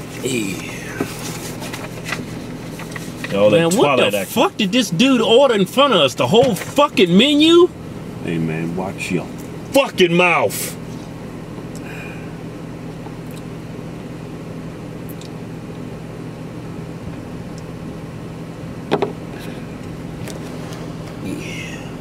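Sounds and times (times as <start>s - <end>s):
car engine idling: 0.0s - 22.0s
car ventilation hum: 0.0s - 22.0s
brief knock: 18.9s - 19.2s.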